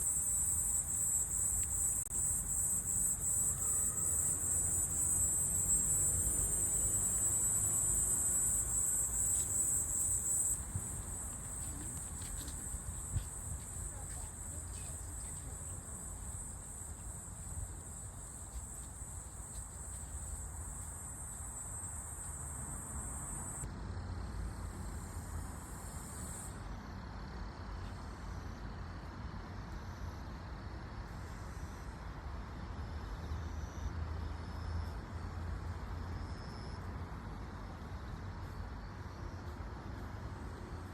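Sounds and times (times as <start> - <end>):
cicada buzzing: 0.0 - 23.6
high insect chirps: 0.0 - 23.6.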